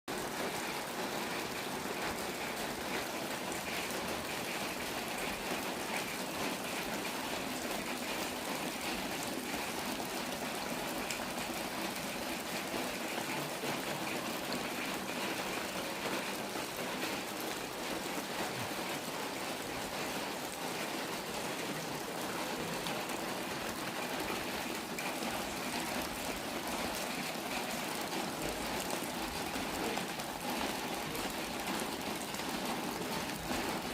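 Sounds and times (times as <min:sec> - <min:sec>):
steady rain falling: 0:00.1 - 0:33.9.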